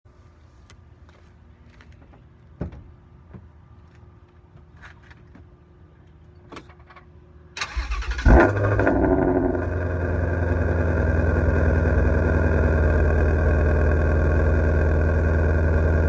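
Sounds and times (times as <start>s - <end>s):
car engine starting loudly: 7.6s - 16.0s.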